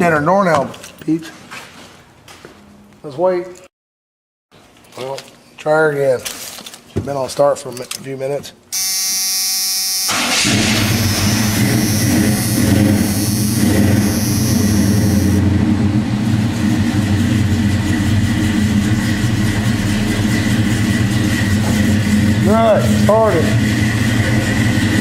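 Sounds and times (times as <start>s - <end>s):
high whine: 8.7s - 25.0s
engine starting and fast idling: 10.0s - 15.4s.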